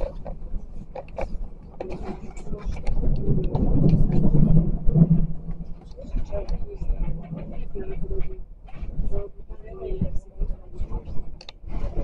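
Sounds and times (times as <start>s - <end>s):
clicks and rattles: 0.0s - 6.7s.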